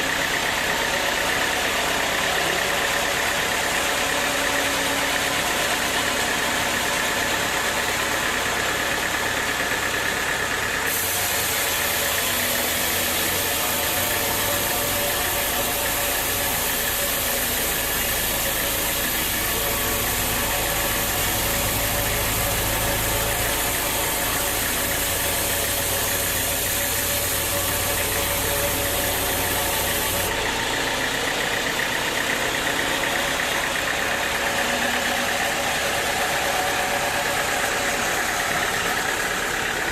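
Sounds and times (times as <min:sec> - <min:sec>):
sawmill machinery droning: 0:00.0 - 0:39.9
high hiss: 0:10.9 - 0:30.3.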